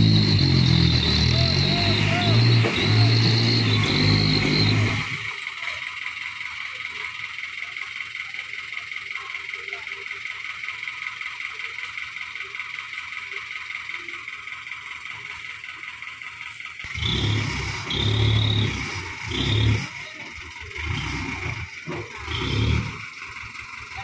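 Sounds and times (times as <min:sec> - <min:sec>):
truck diesel engine revving: 0:00.0 - 0:06.4, 0:14.6 - 0:24.0.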